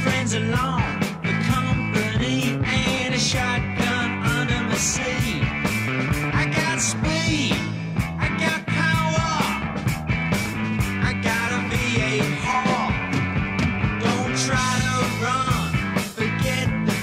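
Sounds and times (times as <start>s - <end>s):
bass guitar: 0.0s - 17.0s
drum beat: 0.0s - 17.0s
electric guitars: 0.0s - 17.0s.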